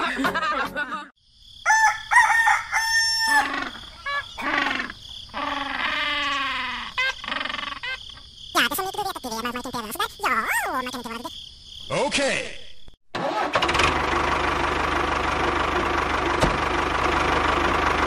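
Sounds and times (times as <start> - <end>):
rooster crowing: 1.6 - 4.4.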